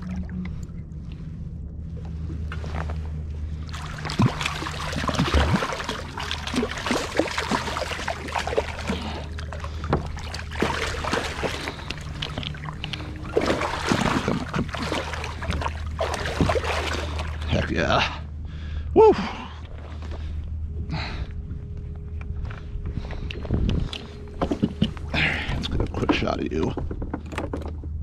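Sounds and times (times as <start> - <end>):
water splashing: 0.0 - 1.2, 3.6 - 17.7
steady low hum: 0.0 - 28.0.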